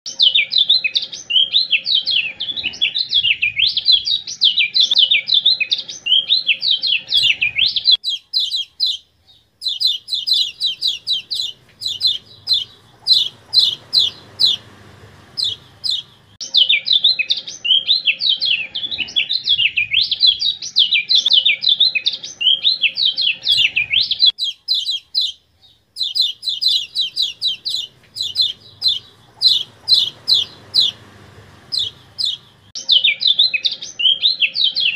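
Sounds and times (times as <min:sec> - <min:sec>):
high bird twittering: 0:00.1 - 0:34.9
sharp bird chip calls: 0:05.0 - 0:16.4, 0:22.3 - 0:33.0.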